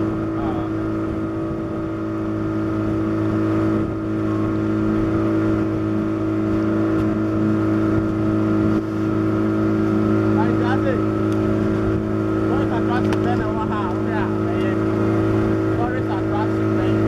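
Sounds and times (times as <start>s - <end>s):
outboard motor droning: 0.0s - 17.0s.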